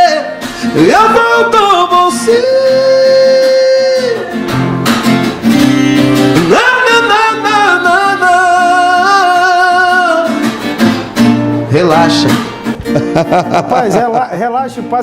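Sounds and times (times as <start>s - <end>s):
person singing with vibrato: 0.0s - 4.5s, 6.3s - 10.4s
acoustic guitar: 0.0s - 15.0s.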